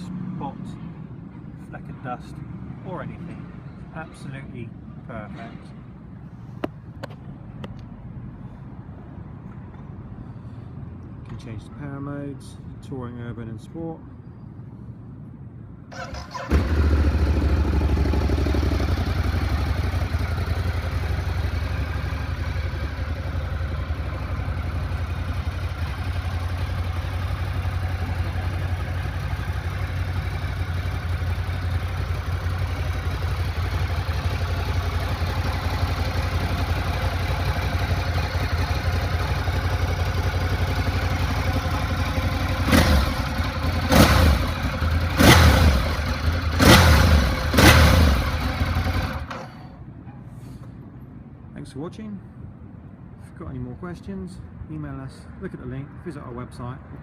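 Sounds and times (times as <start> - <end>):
motorcycle engine idling and revving: 15.9 - 50.1.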